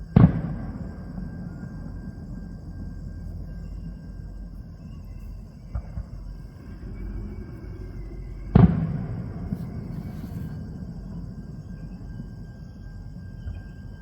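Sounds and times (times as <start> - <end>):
low background rumble: 0.0 - 14.0
firework boom: 8.5 - 10.9.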